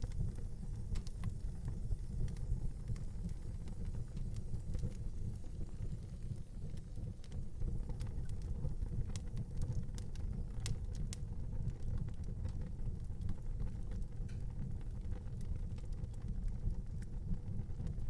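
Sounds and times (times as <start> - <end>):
fire crackles and pops: 0.0 - 18.0
low rumble of fire: 0.0 - 18.0.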